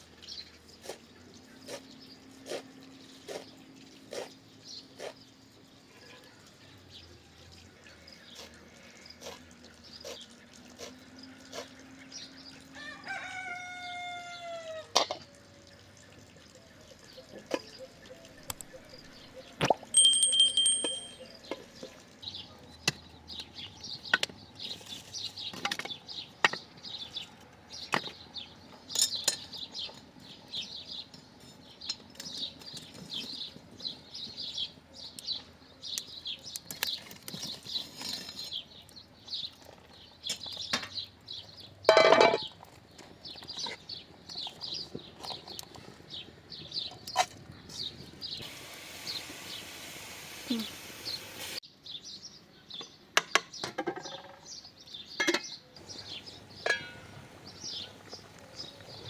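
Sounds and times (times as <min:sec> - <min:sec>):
birds chirping: 0:16.2 - 0:59.0
clinks and knocks: 0:19.9 - 0:21.6, 0:41.9 - 0:42.6, 0:56.1 - 0:57.2.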